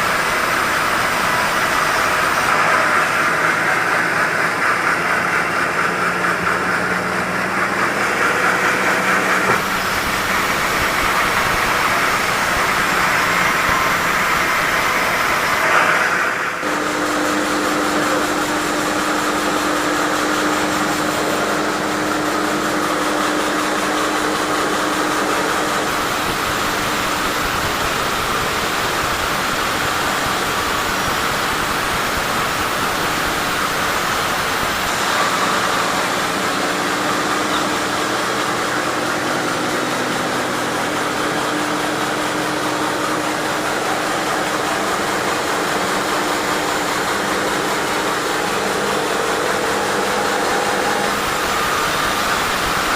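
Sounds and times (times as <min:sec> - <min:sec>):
sawmill machine hum: 0:00.0 - 0:52.9.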